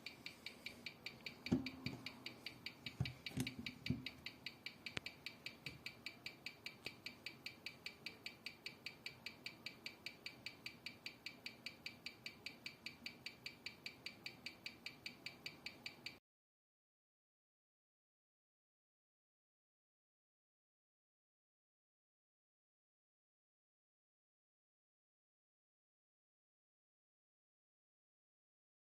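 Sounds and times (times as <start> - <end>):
mechanical watch ticking: 0.0 - 16.2.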